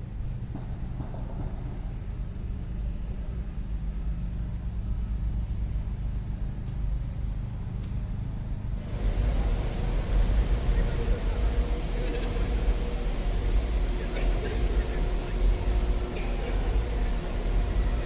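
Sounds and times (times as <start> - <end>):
traffic rumble: 8.7 - 18.0
passing vehicle hiss and hum: 8.8 - 18.0.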